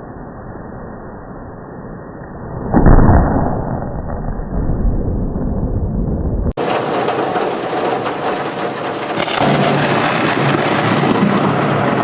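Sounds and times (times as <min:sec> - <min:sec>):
deep muffled thunder rumbling: 0:02.9 - 0:12.0
heavy rain hissing: 0:06.6 - 0:12.0.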